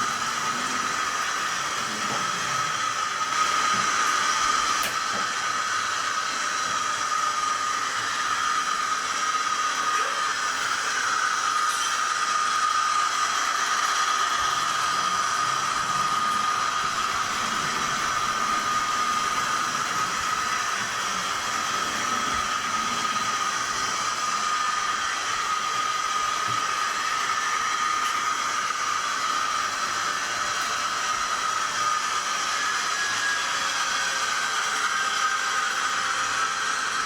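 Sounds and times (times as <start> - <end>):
thin high whine: 9.7 - 29.8.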